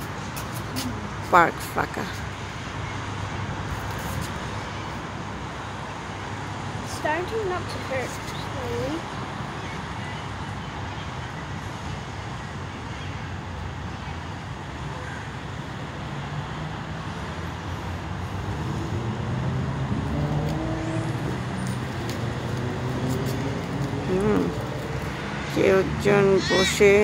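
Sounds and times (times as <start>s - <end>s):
road traffic: 0.0s - 27.0s
vehicle engine: 16.1s - 27.0s.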